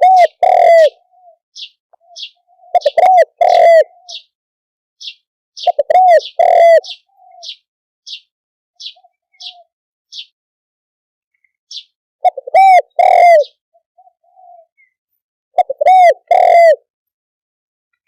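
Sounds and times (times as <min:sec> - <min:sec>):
soft faint coos: 0:00.0 - 0:01.4, 0:02.0 - 0:04.2, 0:12.3 - 0:14.9, 0:15.6 - 0:16.8
dove cooing: 0:00.0 - 0:04.3, 0:05.6 - 0:07.6, 0:08.8 - 0:09.7, 0:12.2 - 0:14.9, 0:15.6 - 0:16.9.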